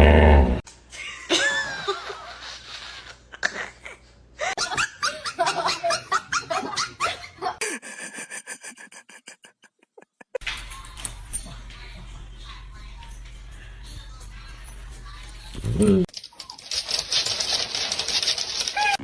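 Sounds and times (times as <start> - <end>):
laughter in choppy bursts: 1.0 - 10.4.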